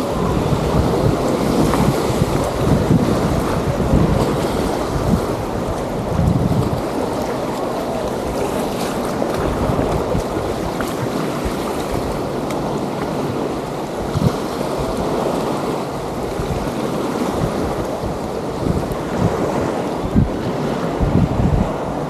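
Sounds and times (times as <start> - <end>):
small waves on beach: 0.0 - 22.0
wind buffeting microphone: 0.0 - 22.0.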